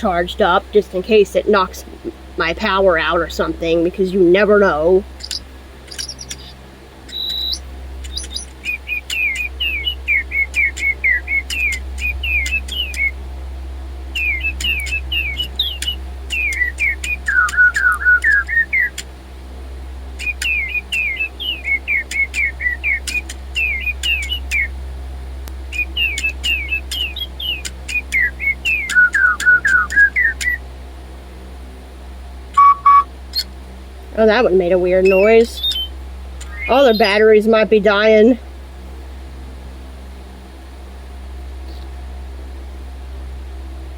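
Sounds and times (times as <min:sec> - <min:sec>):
steady low hum: 0:00.0 - 0:43.9
toy birds chirping electronically: 0:02.4 - 0:13.2, 0:14.1 - 0:19.1, 0:20.2 - 0:24.7, 0:25.7 - 0:30.6, 0:32.6 - 0:33.5, 0:34.2 - 0:38.4
sharp clicks: 0:05.2 - 0:09.7, 0:10.5 - 0:13.1, 0:14.2 - 0:19.1, 0:20.2 - 0:20.8, 0:22.1 - 0:24.6, 0:25.4 - 0:30.6, 0:35.6 - 0:36.7.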